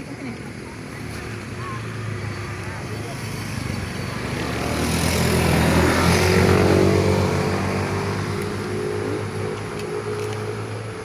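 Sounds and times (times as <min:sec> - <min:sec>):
vehicle engine passing by: 0:03.1 - 0:11.0.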